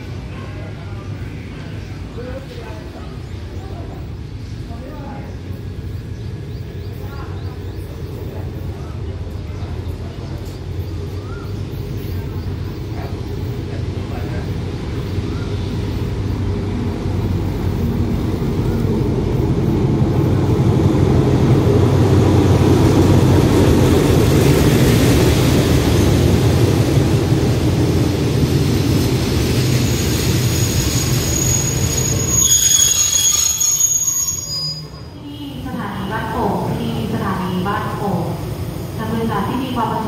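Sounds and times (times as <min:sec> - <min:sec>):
train rumbling: 0:00.0 - 0:40.0
train brakes squealing: 0:29.6 - 0:35.3.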